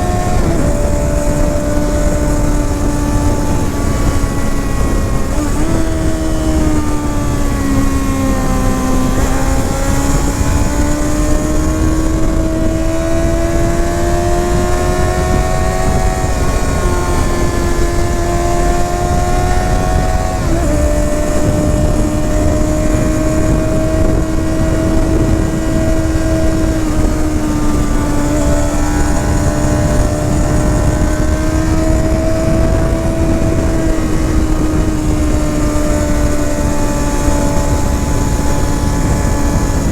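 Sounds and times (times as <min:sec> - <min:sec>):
motorcycle engine and exhaust: 0:00.0 - 0:39.9
wind on microphone: 0:00.0 - 0:39.9.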